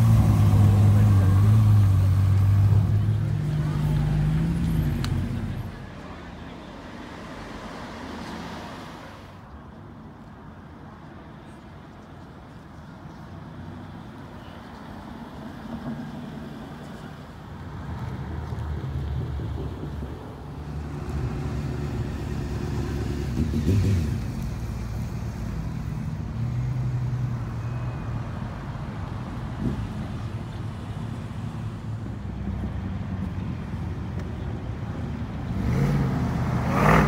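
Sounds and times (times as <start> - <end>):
cars accelerating and driving past: 0.0 - 9.8, 13.0 - 37.0.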